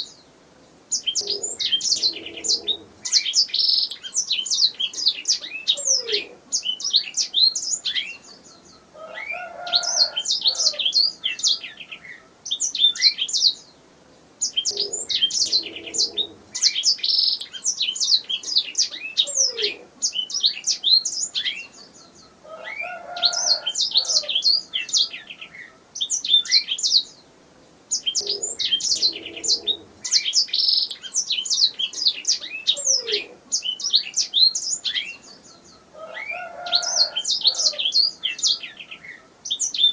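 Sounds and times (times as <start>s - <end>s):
canary singing: 0.9s - 13.7s, 14.4s - 27.2s, 27.9s - 39.9s.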